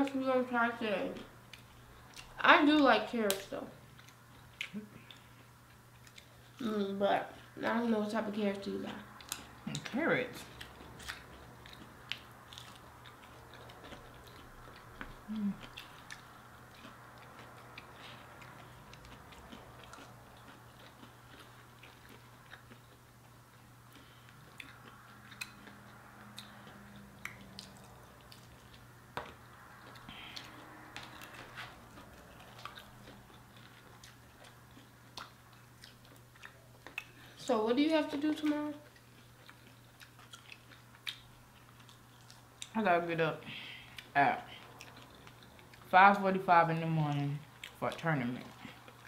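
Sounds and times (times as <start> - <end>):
steady low hum: 0.0 - 49.0
person chewing and biting: 3.9 - 6.6, 10.5 - 37.4, 38.8 - 42.7, 43.8 - 45.9, 47.5 - 47.8.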